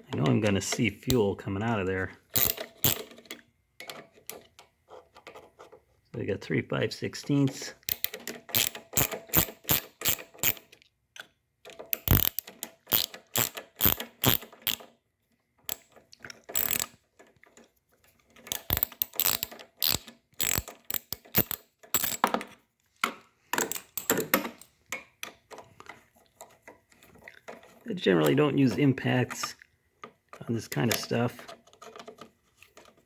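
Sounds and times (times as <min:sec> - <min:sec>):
hand ratchet clicking: 0:02.3 - 0:03.1, 0:07.8 - 0:10.7, 0:11.9 - 0:14.9, 0:15.7 - 0:17.0, 0:18.5 - 0:22.2, 0:23.6 - 0:24.7.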